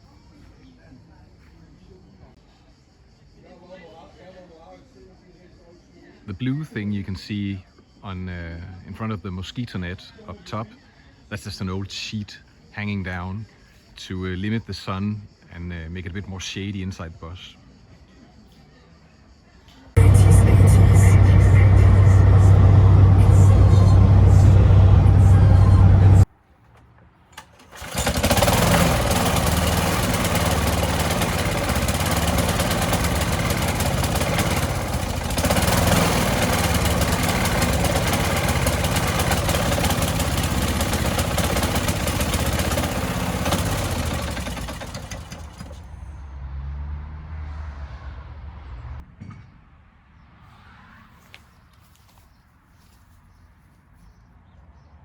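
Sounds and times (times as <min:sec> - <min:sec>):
lawn mower engine: 0:20.0 - 0:26.2, 0:27.3 - 0:46.0.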